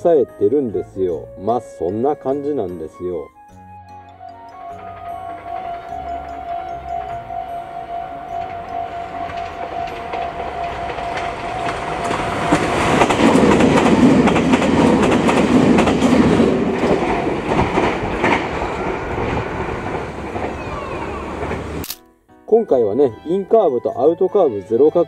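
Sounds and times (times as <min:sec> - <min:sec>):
electric train passing: 0:00.6 - 0:21.9
wheels clicking over rail joints: 0:04.5 - 0:21.9.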